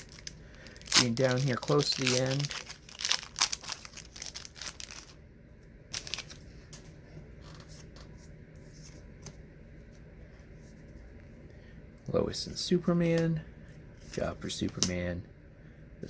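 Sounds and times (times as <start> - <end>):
wrapper tearing and crinkling: 0.0 - 5.2, 5.9 - 6.4.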